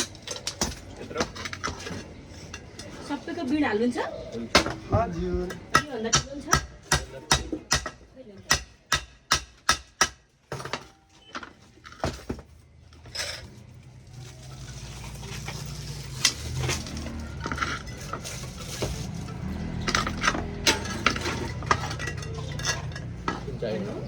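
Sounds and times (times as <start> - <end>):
utensils clinking and knocking: 0.0 - 3.6, 10.5 - 24.0.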